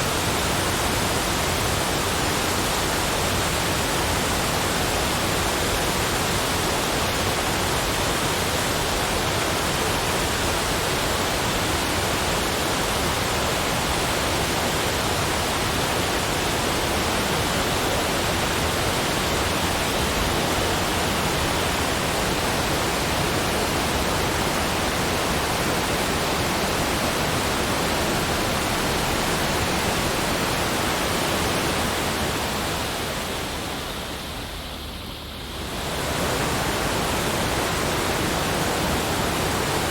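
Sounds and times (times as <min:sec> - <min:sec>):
rush of flowing water: 0:00.0 - 0:39.9.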